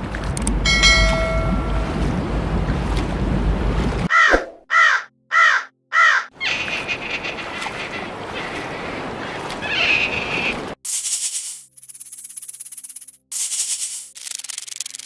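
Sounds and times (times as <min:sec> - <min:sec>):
animal calling: 0:04.1 - 0:10.7.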